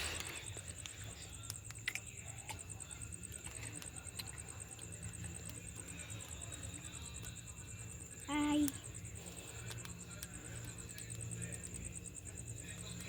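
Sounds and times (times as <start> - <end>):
crickets chirping: 0.0 - 13.0
faint clicks: 9.6 - 11.9.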